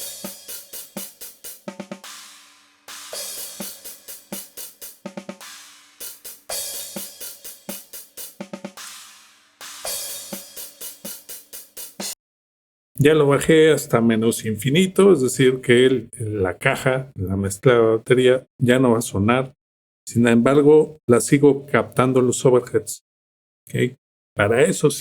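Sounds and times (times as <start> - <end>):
drum kit groove: 0.0 - 12.2.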